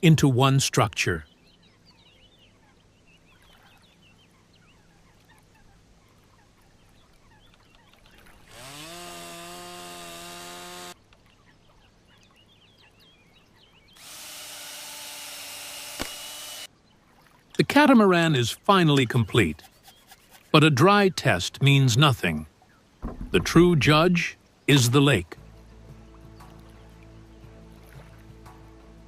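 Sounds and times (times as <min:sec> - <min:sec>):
faint birdsong: 0:00.0 - 0:08.6, 0:10.9 - 0:14.6, 0:16.4 - 0:29.0
electric power tool whining: 0:08.4 - 0:11.0, 0:14.0 - 0:16.7
sharp click: 0:16.0 - 0:16.2.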